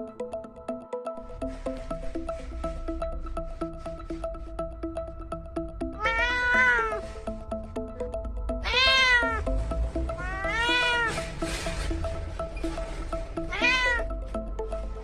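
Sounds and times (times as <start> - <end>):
background music: 0.0 - 15.0
cat meowing: 6.0 - 7.0, 8.6 - 9.4, 10.2 - 11.2, 13.5 - 14.1.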